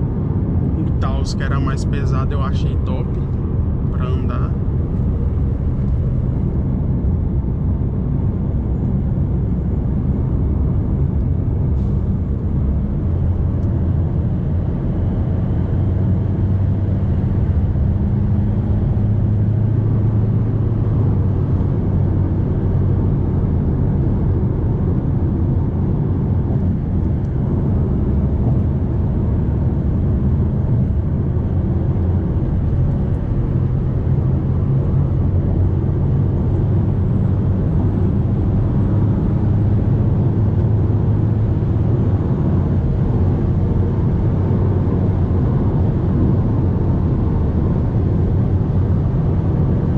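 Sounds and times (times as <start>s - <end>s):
diesel engine drone: 0.0s - 49.9s
road noise: 0.0s - 49.9s.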